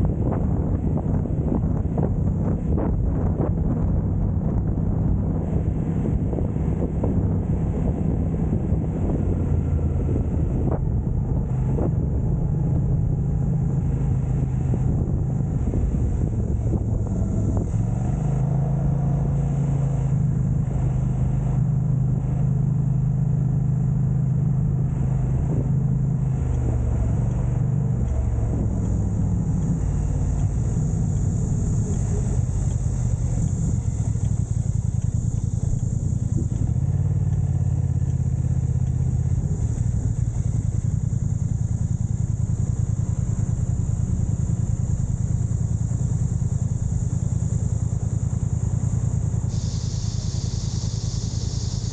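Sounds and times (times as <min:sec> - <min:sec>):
vehicle engine drone: 0:00.0 - 0:51.9.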